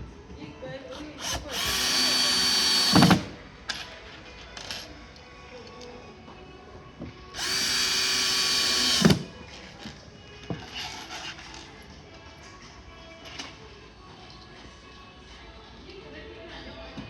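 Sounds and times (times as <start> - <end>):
power drill driving a screw: 1.2 - 3.4, 7.4 - 9.3.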